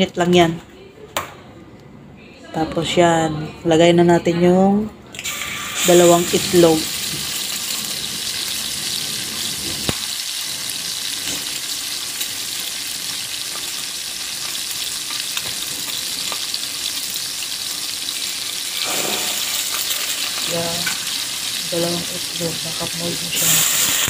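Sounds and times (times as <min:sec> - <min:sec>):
eggs sizzling in a pan: 0:05.2 - 0:24.0.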